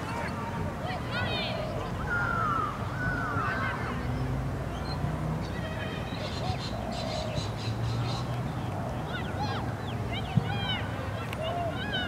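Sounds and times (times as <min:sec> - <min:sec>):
outdoor background noise: 0:00.0 - 0:12.0
birds squawking and chattering: 0:01.2 - 0:10.8.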